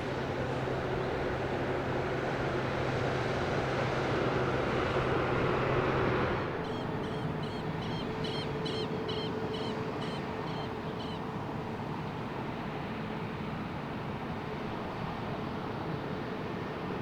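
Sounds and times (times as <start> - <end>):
bird short high calls: 6.6 - 11.3.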